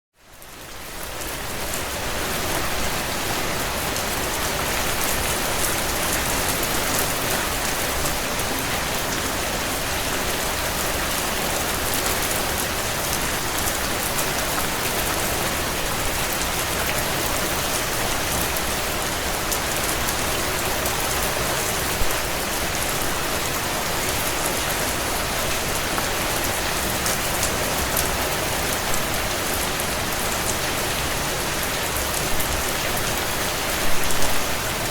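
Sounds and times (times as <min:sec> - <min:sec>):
heavy rain on window panes: 0:00.2 - 0:34.9.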